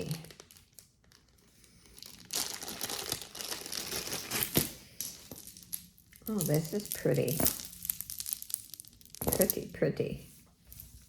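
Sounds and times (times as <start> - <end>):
packaging crinkling and rustling: 0.0 - 5.7.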